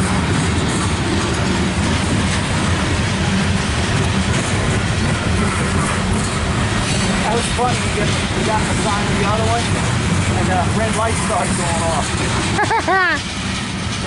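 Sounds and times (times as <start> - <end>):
steel train wheels on rails: 0.0 - 14.0.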